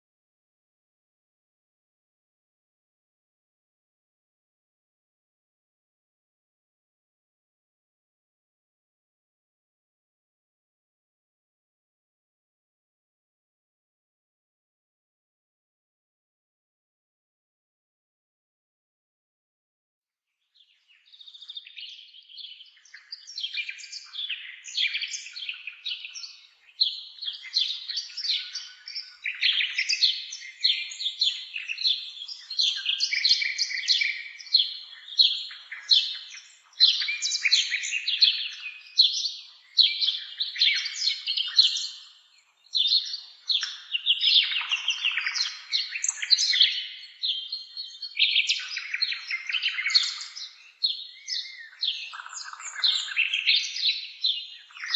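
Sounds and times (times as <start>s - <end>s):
songbird singing: 20.4s - 54.9s.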